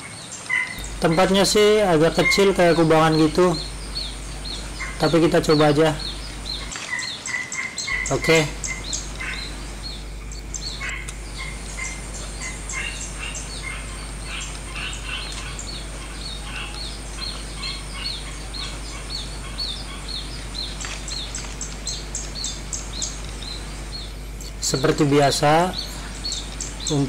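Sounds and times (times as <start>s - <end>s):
small birds chirping: 0.0s - 27.0s
steady high-pitched hiss: 0.0s - 27.0s.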